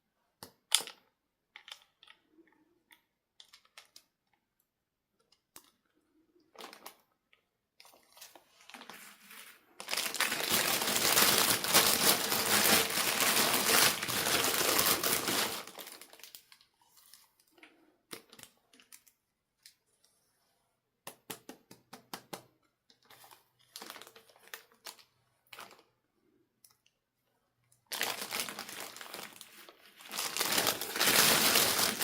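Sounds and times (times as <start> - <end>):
packaging crinkling: 7.9 - 17.3, 27.9 - 32.0.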